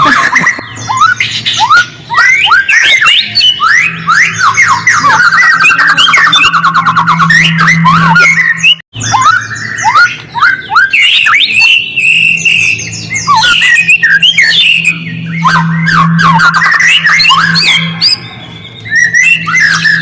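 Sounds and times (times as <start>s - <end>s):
bird singing: 0.0s - 20.0s
steady low hum: 11.8s - 20.0s.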